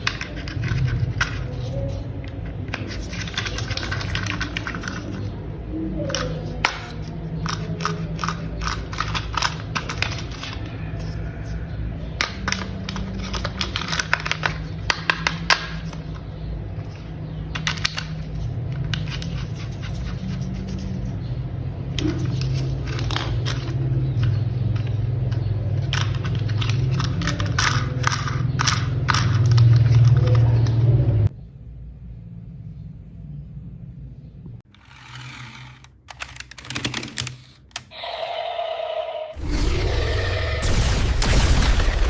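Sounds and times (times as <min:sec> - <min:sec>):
plastic toy parts clicking together: 0:06.1 - 0:11.6, 0:12.2 - 0:16.2, 0:16.8 - 0:19.5, 0:22.0 - 0:30.4, 0:34.8 - 0:37.9.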